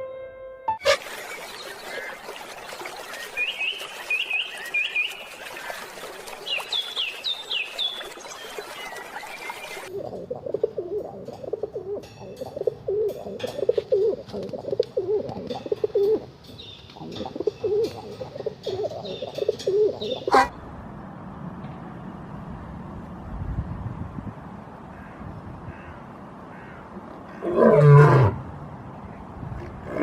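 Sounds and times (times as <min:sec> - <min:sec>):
pigeons cooing: 0:09.7 - 0:16.3, 0:16.9 - 0:20.5.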